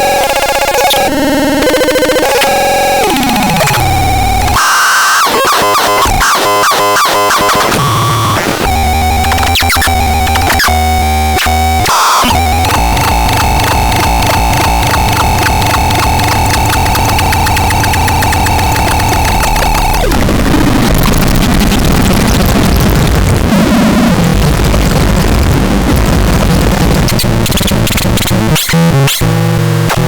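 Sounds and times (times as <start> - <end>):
buzzing synthesizer tones: 0.0 - 23.9
synthesizer drone with pulsing beat: 0.0 - 28.4
synthesizer pitch sweeps: 0.1 - 21.2.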